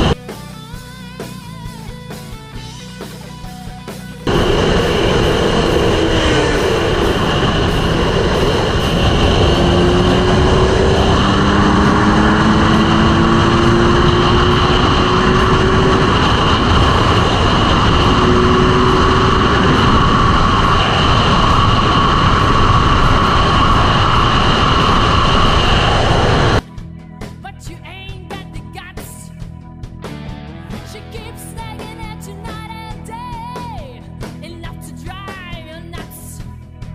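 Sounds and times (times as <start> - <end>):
motorcycle engine revving: 0.0 - 0.2, 4.2 - 26.6
wind noise on microphone: 0.0 - 0.2, 4.2 - 26.6.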